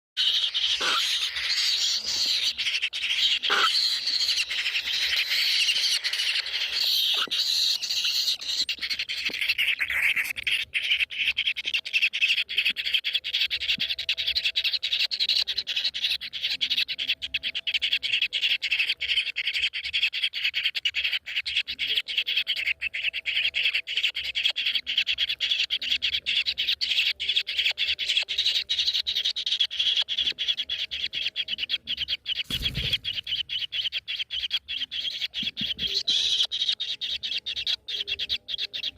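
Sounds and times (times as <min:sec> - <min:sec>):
bird calling in high notes: 0:00.2 - 0:08.8.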